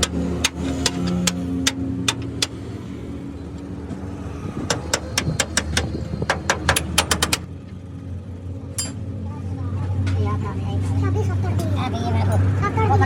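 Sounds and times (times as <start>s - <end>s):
sharp metal knocks: 0.0s - 2.8s, 4.6s - 7.5s, 8.8s - 9.0s.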